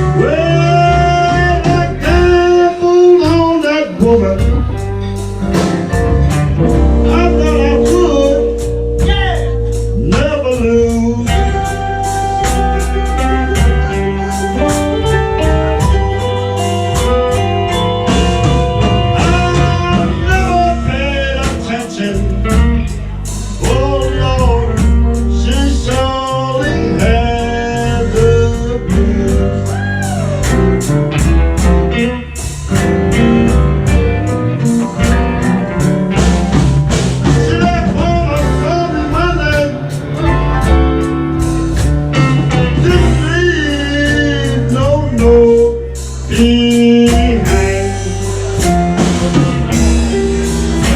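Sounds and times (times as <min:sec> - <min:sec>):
bass: 0:00.0 - 0:50.9
blues guitar with bending notes: 0:00.0 - 0:50.9
steady drum beat: 0:00.0 - 0:50.9.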